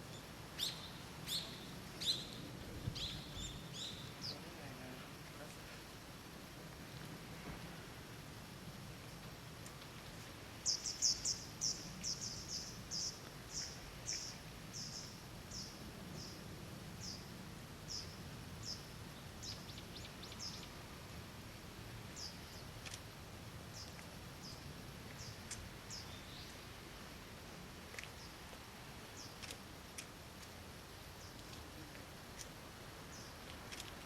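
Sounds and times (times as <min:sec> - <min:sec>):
bird chirping: 0:00.1 - 0:04.4.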